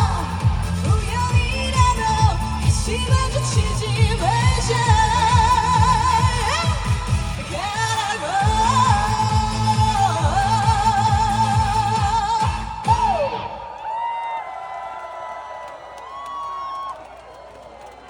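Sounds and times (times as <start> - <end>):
backing music with steady beat: 0.0 - 13.5
woman singing with vibrato: 0.0 - 13.5.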